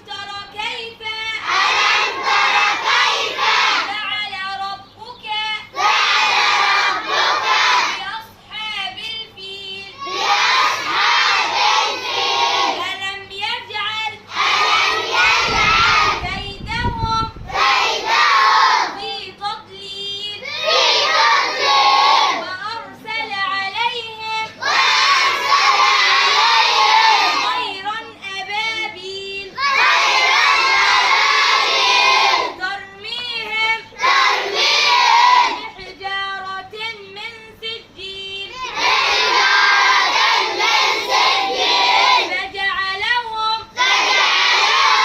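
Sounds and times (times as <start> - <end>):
children chanting in unison: 1.4 - 4.0, 5.7 - 8.1, 9.9 - 12.8, 14.3 - 16.3, 17.5 - 19.1, 20.4 - 22.5, 24.4 - 27.8, 29.5 - 32.6, 33.9 - 35.8, 38.5 - 42.4, 43.7 - 45.0.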